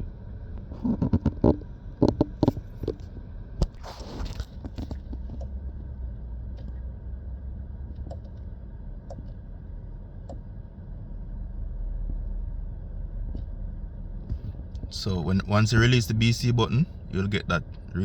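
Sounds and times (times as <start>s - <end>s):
car cabin hum: 0.6s - 18.0s
faint clicks of controls: 4.6s - 5.8s, 7.9s - 9.5s, 10.2s - 10.5s.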